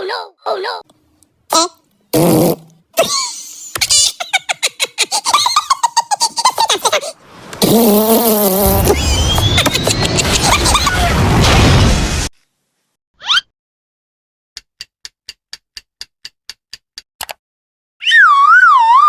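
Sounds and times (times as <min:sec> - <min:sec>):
cartoon wobbling tones: 0:18.0 - 0:19.0.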